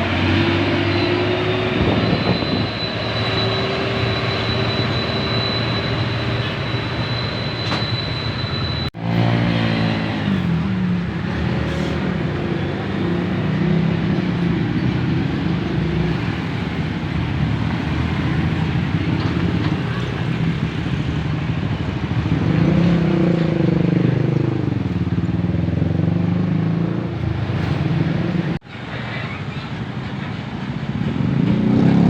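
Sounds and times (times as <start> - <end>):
high whine: 0.0 - 9.1.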